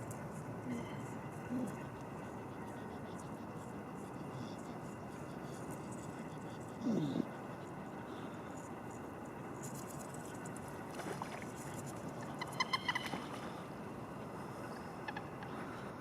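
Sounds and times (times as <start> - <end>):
steady background hiss: 0.0 - 16.0
birds calling: 12.1 - 13.6.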